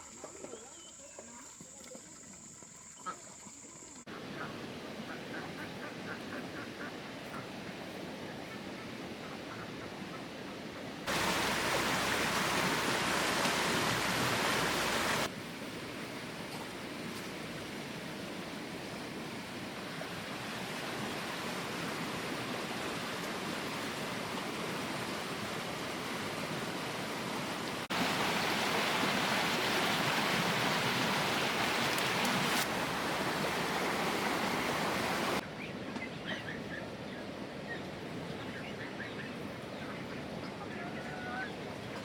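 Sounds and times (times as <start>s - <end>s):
water hissing: 11.1s - 15.3s, 27.8s - 35.4s.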